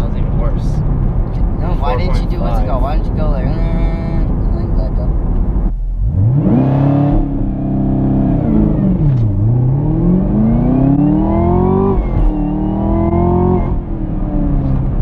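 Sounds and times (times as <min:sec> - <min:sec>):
car engine accelerating hard: 0:03.5 - 0:15.0.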